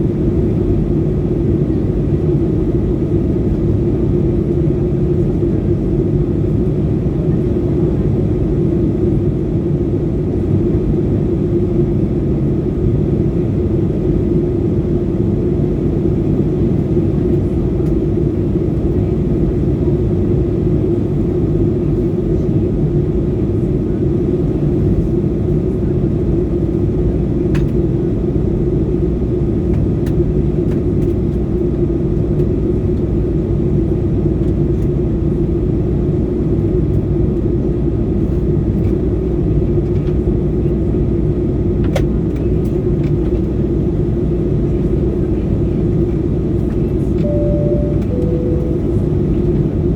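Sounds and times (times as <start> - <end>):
constant low hum: 0.0 - 49.9
jet engine and airflow rumble: 0.0 - 49.9.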